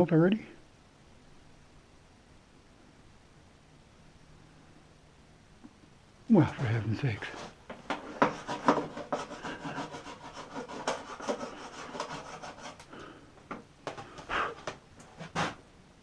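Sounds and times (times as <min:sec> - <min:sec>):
hands rubbing and scraping wire: 0:06.4 - 0:15.6.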